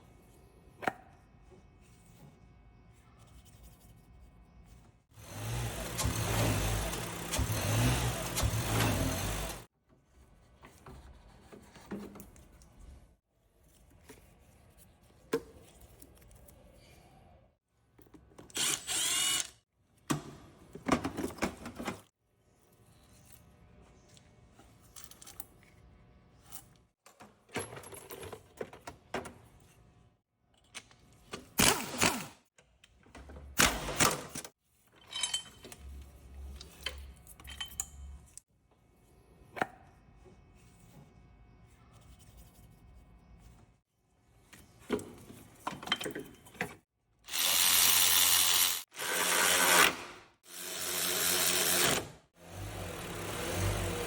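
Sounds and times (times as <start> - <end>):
power drill whine: 18.6 - 19.6, 47.3 - 54.0
tools clinking: 35.0 - 38.4.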